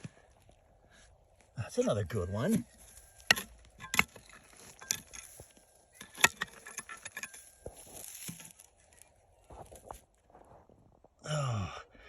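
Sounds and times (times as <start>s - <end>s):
stones knocking together: 3.1s - 8.7s.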